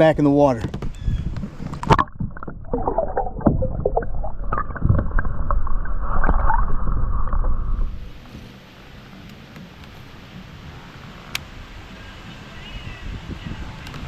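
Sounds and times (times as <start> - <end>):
muffled water splashing and gurgling: 0.7 - 11.2
wind hiss: 6.9 - 14.0.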